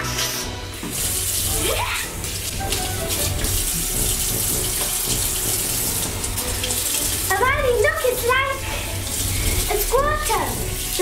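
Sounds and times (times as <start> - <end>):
tap water running into sink: 0.6 - 11.0.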